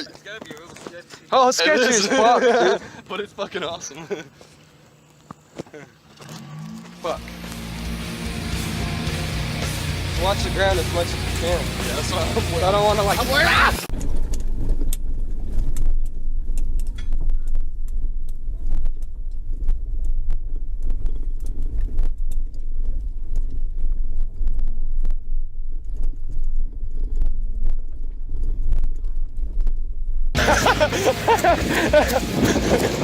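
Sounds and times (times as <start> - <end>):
vehicle rumbling over rough ground: 4.6 - 13.1
loud rushing noise: 7.0 - 13.9, 30.4 - 33.0.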